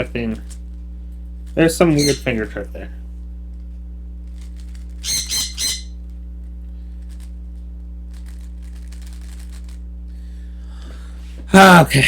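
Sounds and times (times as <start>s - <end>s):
steady low hum: 0.0s - 12.0s
bird squawking: 1.9s - 2.4s, 5.0s - 6.0s.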